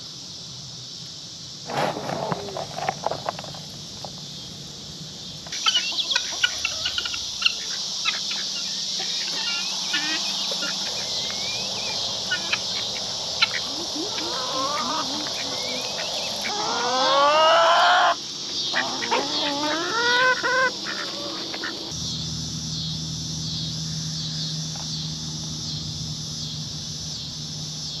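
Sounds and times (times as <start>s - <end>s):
insects chorus: 0.0s - 28.0s
chickens squawking: 5.5s - 22.0s
low steady hum: 21.8s - 27.9s.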